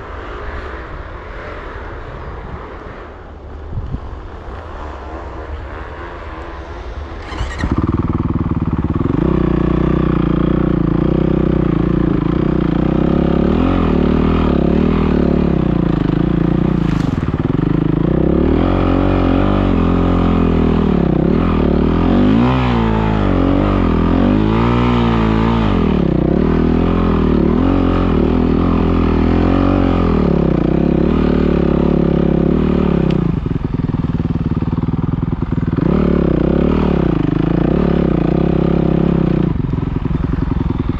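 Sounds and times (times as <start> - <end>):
dirt bike engine revving: 7.2 - 33.0.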